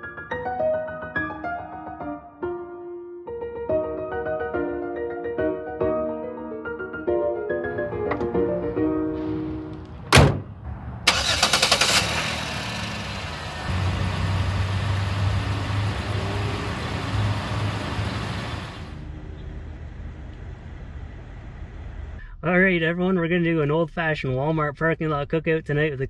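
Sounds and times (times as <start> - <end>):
car hood slamming shut: 7.8 - 8.5, 9.2 - 10.7
car engine cranking and idling: 9.7 - 22.2.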